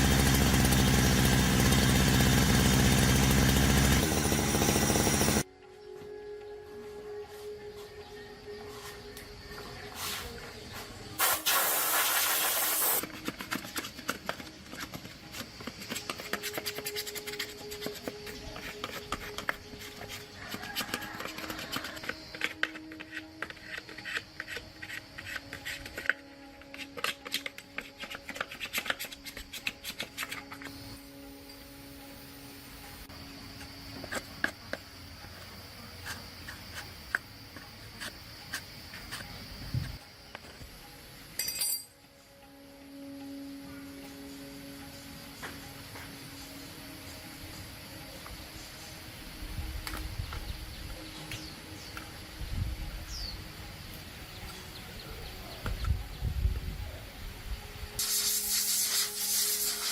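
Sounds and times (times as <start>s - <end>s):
spraying hiss: 11.2s - 13.0s, 58.0s - 59.9s
high-pitched background buzz: 29.2s - 59.9s.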